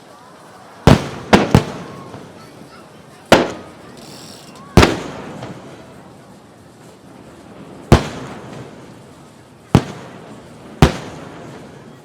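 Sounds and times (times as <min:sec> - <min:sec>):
firework shells bursting: 0:00.9 - 0:02.3, 0:03.3 - 0:05.7, 0:07.8 - 0:09.0, 0:09.7 - 0:11.7.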